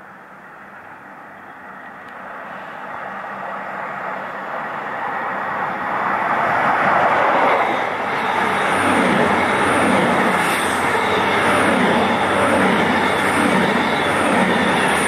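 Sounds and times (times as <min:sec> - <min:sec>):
train rushing along the line: 0:00.0 - 0:15.0.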